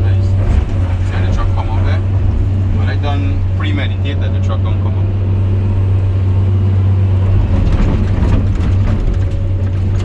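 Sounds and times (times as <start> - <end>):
digger engine running: 0.0 - 10.0
bucket clanking and scraping: 0.2 - 3.6, 7.3 - 10.0.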